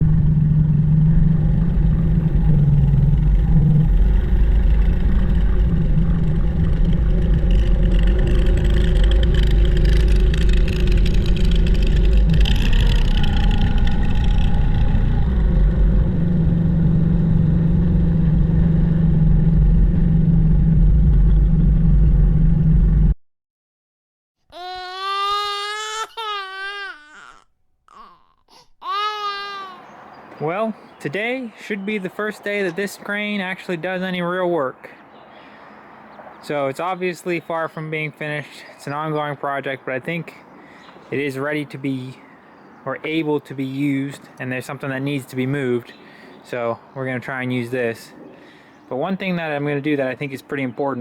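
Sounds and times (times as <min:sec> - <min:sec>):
crane engine running: 0:00.0 - 0:23.2.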